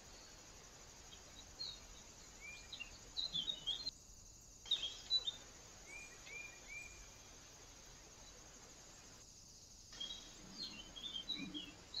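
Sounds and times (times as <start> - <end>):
steady background hiss: 0.0 - 12.0
birds chirping: 1.2 - 3.9, 10.0 - 12.0.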